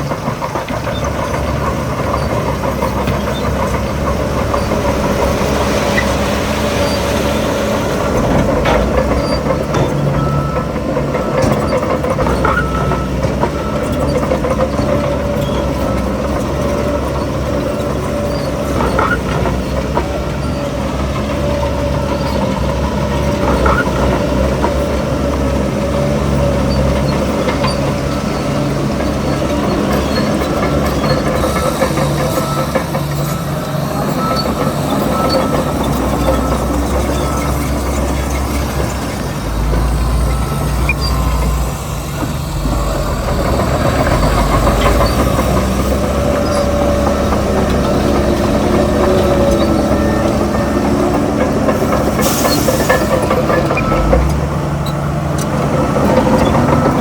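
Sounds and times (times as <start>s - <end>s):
heavy diesel machinery running: 0.0s - 57.0s.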